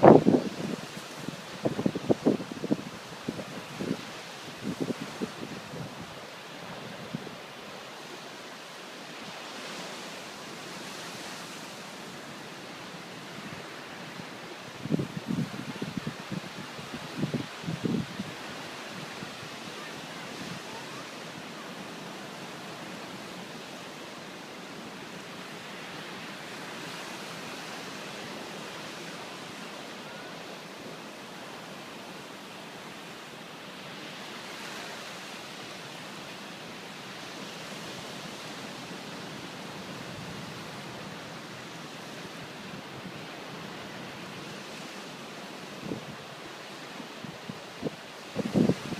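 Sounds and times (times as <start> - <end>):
rushing storm noise: 0.0 - 8.9, 47.3 - 48.9.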